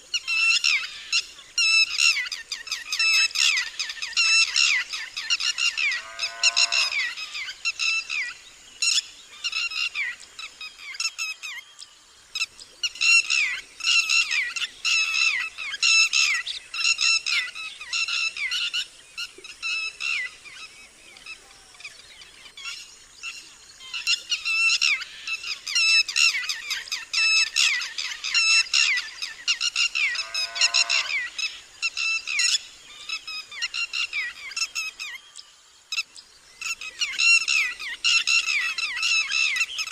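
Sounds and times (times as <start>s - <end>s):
lapwing alarm calls: 4.4s - 8.2s, 24.8s - 35.2s
lower falling bird call: 29.8s - 31.4s.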